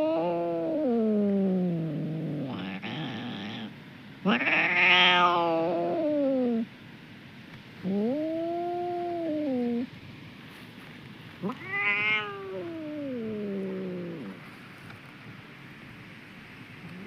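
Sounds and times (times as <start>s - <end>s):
cat yowling: 0.0s - 3.7s, 4.3s - 6.7s, 11.4s - 14.4s.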